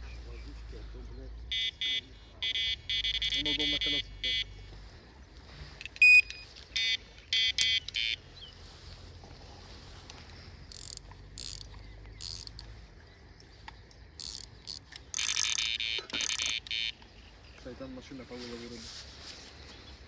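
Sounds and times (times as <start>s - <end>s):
bite alarm beeping: 1.3s - 4.8s, 5.7s - 8.5s, 14.1s - 17.5s
sharp clicks: 5.8s - 8.2s, 10.0s - 17.2s.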